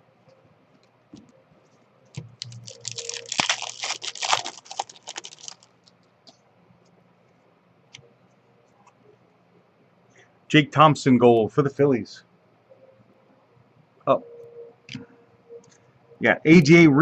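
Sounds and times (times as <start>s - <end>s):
foil wrapper crinkling: 2.3s - 5.9s.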